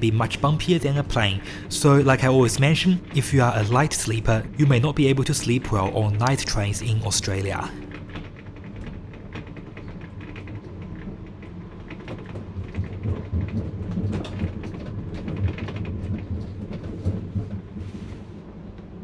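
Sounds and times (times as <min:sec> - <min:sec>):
carriage clicks rattles and creaks: 0:00.0 - 0:13.0
train running rumble: 0:00.0 - 0:19.0.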